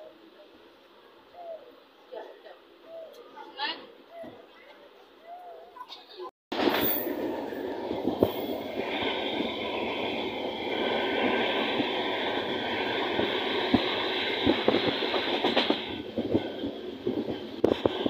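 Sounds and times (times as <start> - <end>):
train wheels rumbling on track: 6.5 - 18.0.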